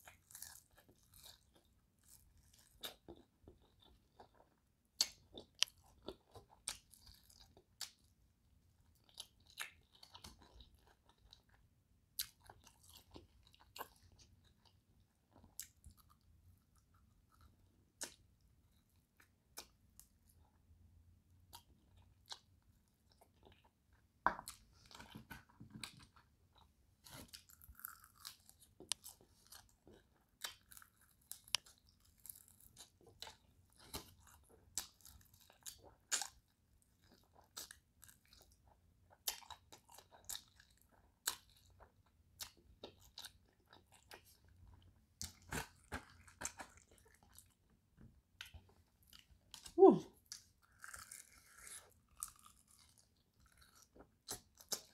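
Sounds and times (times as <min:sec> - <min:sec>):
crunching fried chicken: 0:27.1 - 0:47.6, 0:50.2 - 0:54.9.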